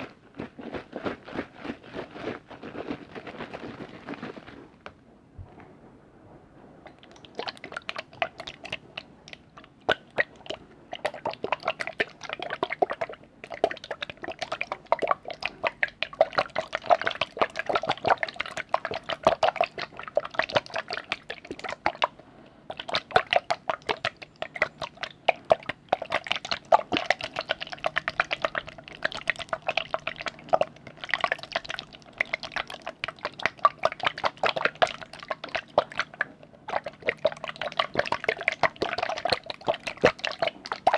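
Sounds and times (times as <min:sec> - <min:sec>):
wet drips and splashy clicks: 0:22.7 - 0:40.9.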